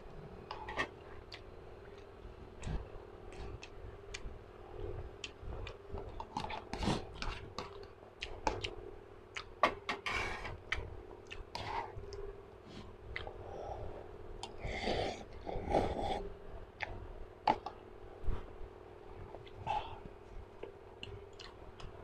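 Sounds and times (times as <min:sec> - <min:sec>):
faint steady hum: 0:00.0 - 0:22.0
chewing noodles: 0:21.0 - 0:22.0.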